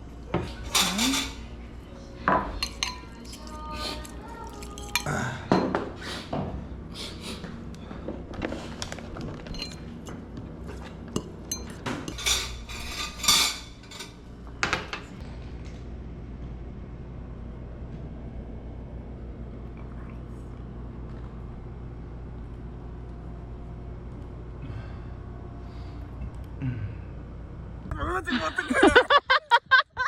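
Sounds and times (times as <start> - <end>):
low steady hum: 0.0 - 30.0
plates and cutlery clinking: 0.3 - 1.5, 2.3 - 5.9, 8.9 - 10.0, 10.7 - 15.1.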